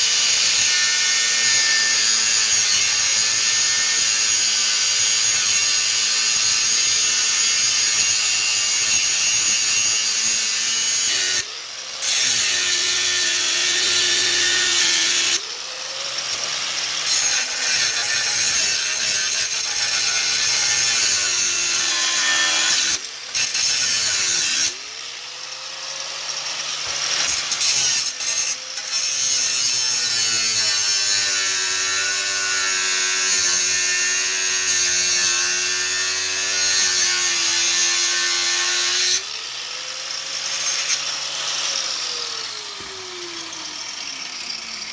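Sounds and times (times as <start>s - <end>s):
electric power tool motor: 30.4s - 44.9s.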